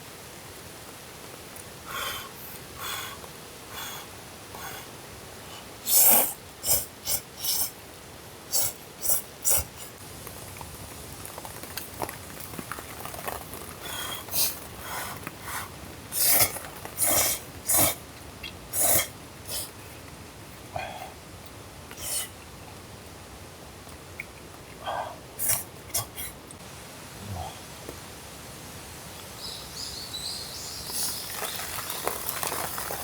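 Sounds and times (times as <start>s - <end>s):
person slurping noodles: 5.9s - 7.7s, 16.1s - 18.0s, 18.7s - 19.8s.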